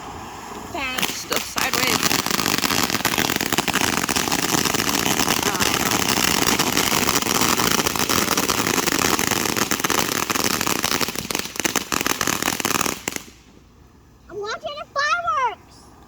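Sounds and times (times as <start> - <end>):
fireworks crackling: 0.0 - 15.6.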